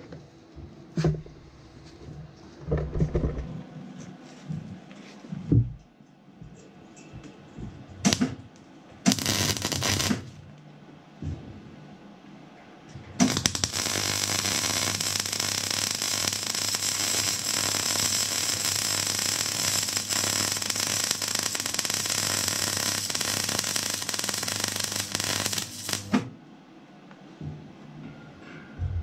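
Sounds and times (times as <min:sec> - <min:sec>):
welding arc crackling: 0:09.1 - 0:10.4, 0:13.2 - 0:26.3
low steady hum: 0:26.3 - 0:29.0.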